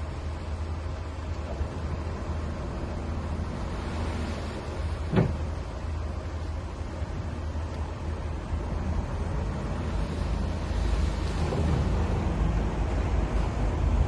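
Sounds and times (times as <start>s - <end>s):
short thump: 5.1s - 5.5s.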